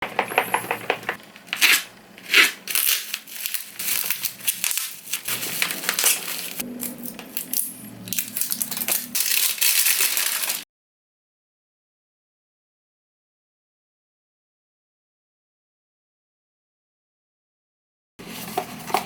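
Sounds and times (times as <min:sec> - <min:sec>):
packaging crinkling and tearing: 0:01.5 - 0:10.6.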